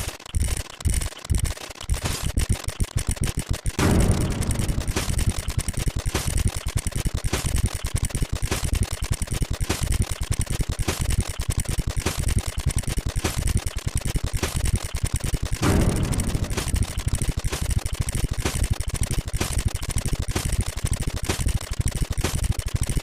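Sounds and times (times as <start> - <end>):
rapid counter ticking: 0.0 - 23.0
louder tick stroke: 3.8 - 6.7, 15.6 - 18.6
low thuds: 3.8 - 6.7, 15.6 - 18.6.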